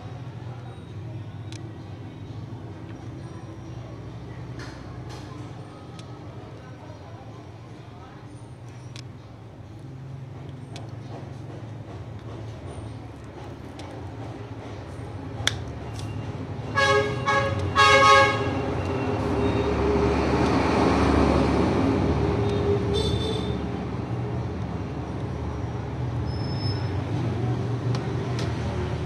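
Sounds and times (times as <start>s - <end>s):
higher-pitched horn honk: 16.8s - 18.6s
vehicle horn honks: 16.8s - 18.6s, 22.9s - 23.6s
vehicle passing: 18.4s - 23.0s.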